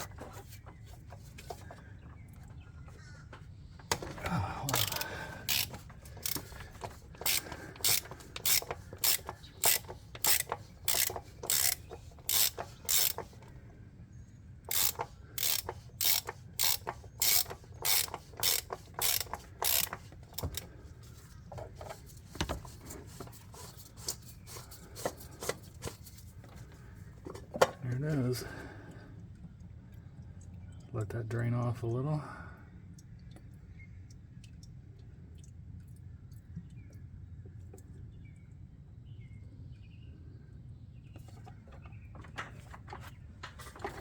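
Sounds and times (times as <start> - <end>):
socket ratchet clicking: 3.9 - 13.5, 14.7 - 20.7.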